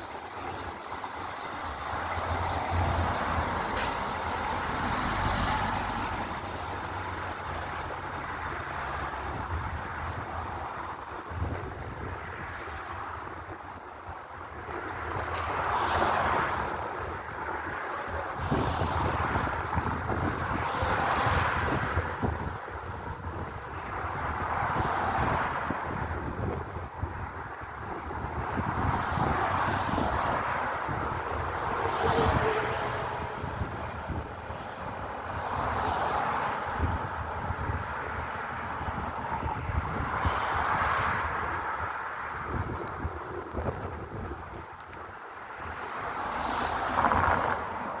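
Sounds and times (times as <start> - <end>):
road traffic noise: 0.0 - 48.0
wind buffeting microphone: 0.0 - 48.0.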